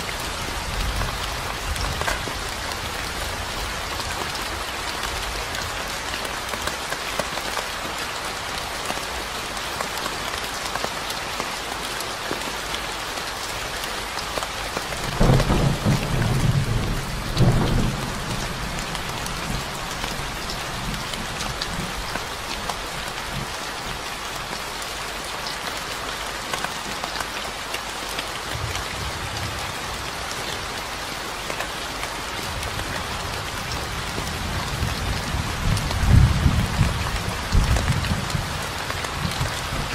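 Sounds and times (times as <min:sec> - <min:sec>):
rain falling: 0:00.0 - 0:39.9
thunder rumbling: 0:15.1 - 0:22.0.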